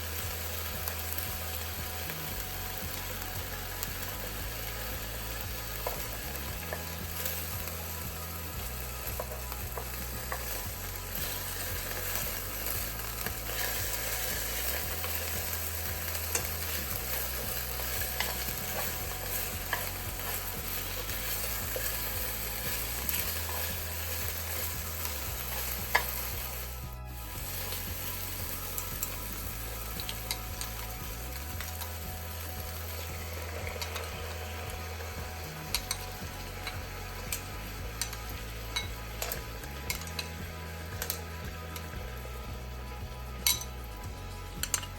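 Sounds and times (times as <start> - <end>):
food sizzling in a frying pan: 0.0 - 44.9
utensil clicking against pan: 5.7 - 26.4, 35.4 - 41.9.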